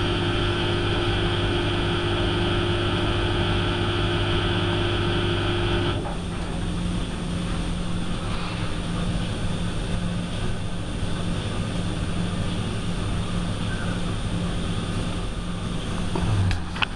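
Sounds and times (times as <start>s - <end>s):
high whine: 0.0s - 6.1s
washing machine hum and rumble: 0.0s - 16.9s.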